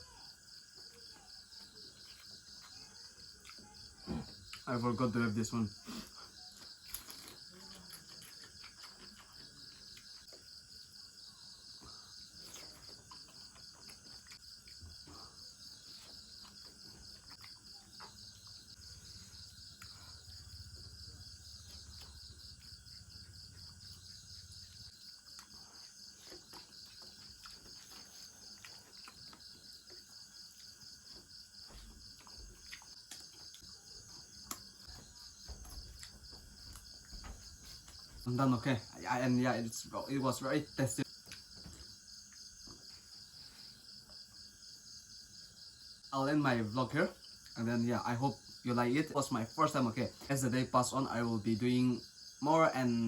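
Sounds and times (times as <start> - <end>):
crickets trilling: 0.0 - 53.0
person eating: 5.8 - 10.3, 25.2 - 31.2, 31.8 - 33.7.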